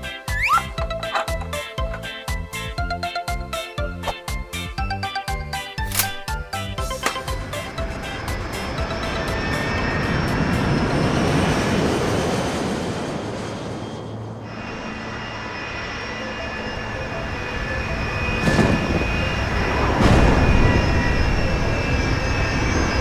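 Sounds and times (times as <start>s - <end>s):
engine-like rushing noise: 7.0s - 23.0s.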